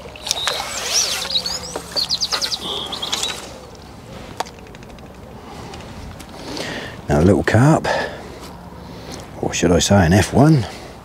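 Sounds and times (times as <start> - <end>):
songbird singing chirps and whistles: 0.0 - 3.9.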